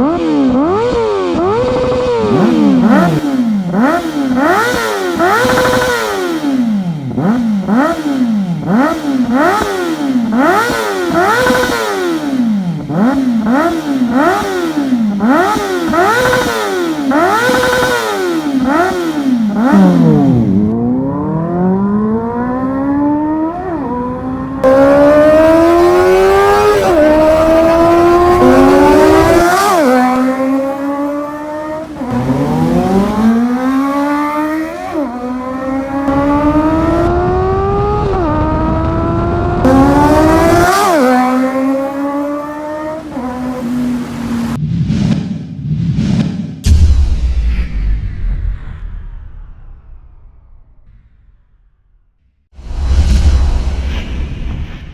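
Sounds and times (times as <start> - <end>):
motorcycle engine revving and accelerating: 0.0 - 46.8.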